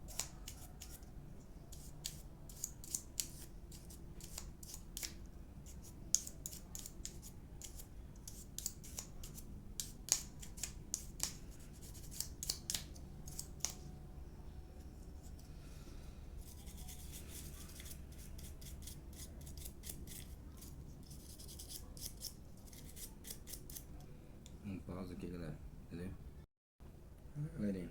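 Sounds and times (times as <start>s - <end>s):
soft scraping and rubbing: 14.4s - 23.6s.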